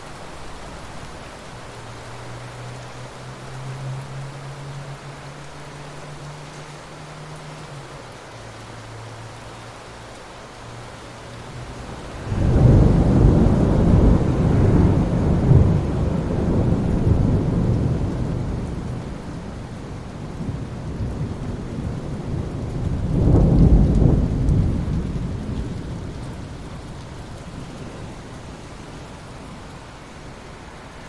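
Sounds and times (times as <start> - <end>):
rain falling on water: 0.0 - 31.0
rolling thunder rumbles: 11.6 - 29.1.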